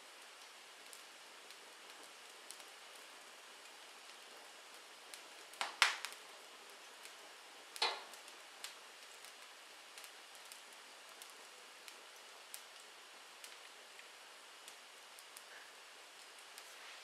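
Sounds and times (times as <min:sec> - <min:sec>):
wood fire crackling: 0:00.0 - 0:17.0
loud fire pops: 0:03.6 - 0:06.2, 0:07.0 - 0:16.7.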